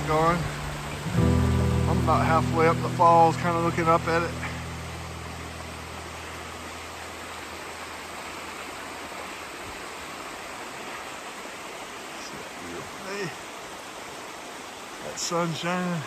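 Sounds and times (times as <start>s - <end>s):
low hum: 0.0s - 8.4s
waterfall rushing: 0.0s - 16.0s.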